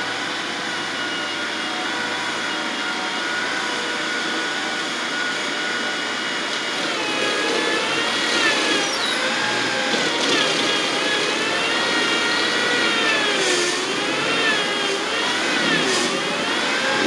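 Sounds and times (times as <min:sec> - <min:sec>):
landscaping machine engine running: 0:06.8 - 0:17.0.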